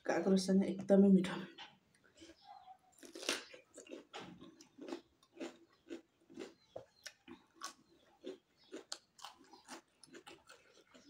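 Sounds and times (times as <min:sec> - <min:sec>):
person crunching cucumber: 0:02.2 - 0:11.0.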